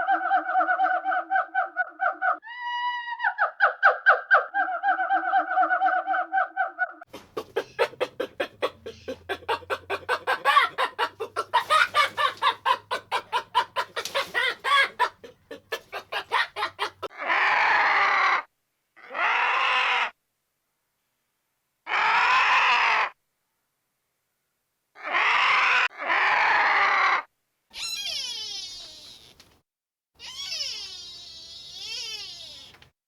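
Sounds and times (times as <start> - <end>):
chickens clucking: 7.1 - 17.1
noisy calls: 7.2 - 18.1.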